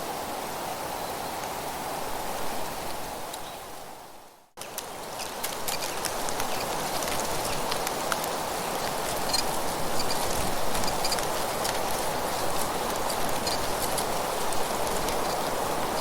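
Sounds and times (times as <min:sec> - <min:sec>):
wind: 0:00.0 - 0:16.0
dry leaves rustling: 0:04.6 - 0:16.0.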